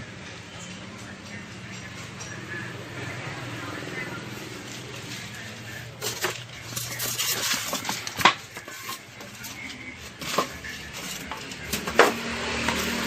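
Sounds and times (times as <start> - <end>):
hard objects clattering: 4.5 - 13.0.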